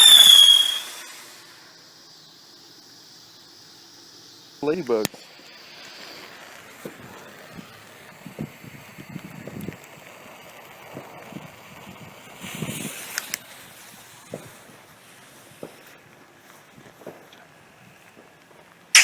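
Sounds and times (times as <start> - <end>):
short hiss: 0.0 - 1.8
outdoor background noise: 0.0 - 19.0
soft footsteps and handling thumps: 16.8 - 17.4.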